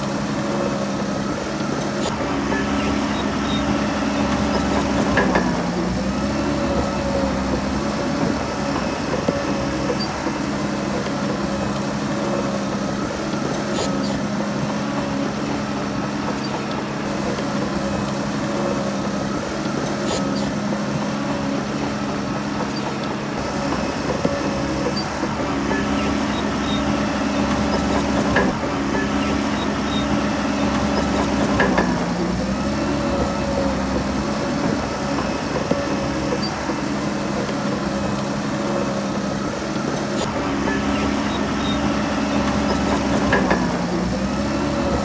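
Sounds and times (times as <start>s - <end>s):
heavy diesel engine running: 0.0s - 45.0s.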